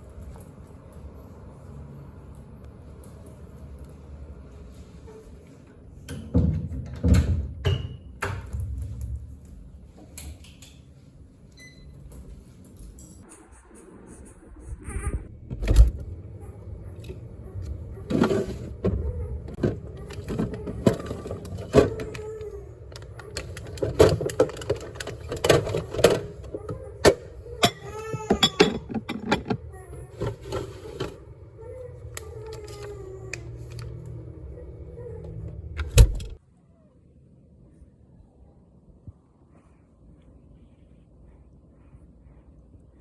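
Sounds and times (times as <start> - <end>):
low hum: 13.2 - 25.5
objects knocking and clattering: 18.1 - 31.2.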